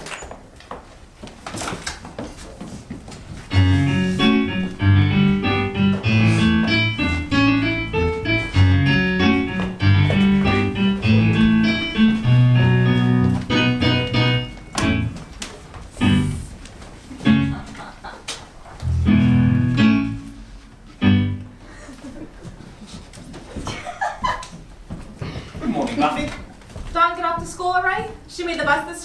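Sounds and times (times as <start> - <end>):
piano-like keyboard music: 3.5 - 15.4, 16.0 - 16.6, 17.2 - 17.8, 18.8 - 21.7.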